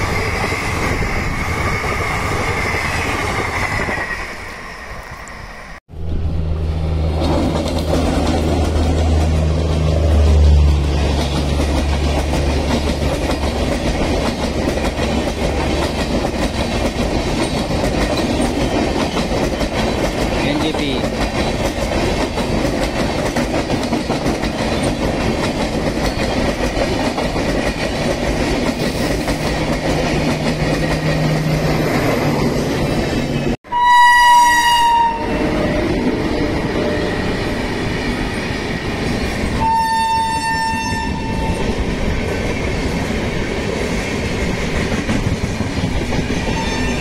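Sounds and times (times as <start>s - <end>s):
train wheels rushing on track: 0.0s - 33.6s, 34.6s - 47.0s
locomotive horn: 33.6s - 36.0s, 39.6s - 41.7s.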